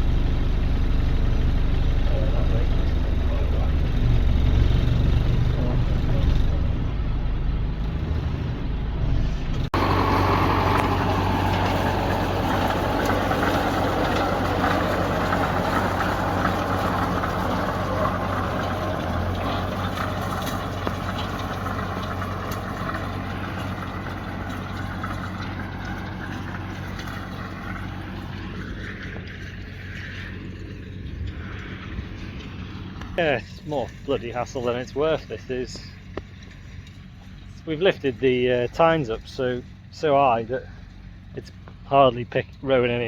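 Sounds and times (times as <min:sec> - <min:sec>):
tractor engine running: 0:00.0 - 0:43.0
rattling hay rake machinery: 0:09.7 - 0:43.0.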